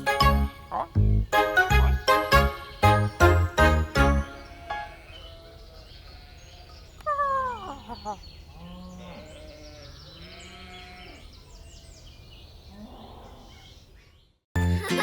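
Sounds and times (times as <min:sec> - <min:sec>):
cartoon animal calls: 0:07.0 - 0:08.2.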